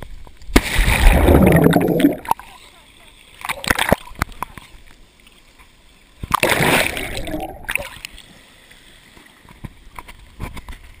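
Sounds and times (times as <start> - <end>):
loud splash in water: 0.6 - 2.3, 6.3 - 7.8.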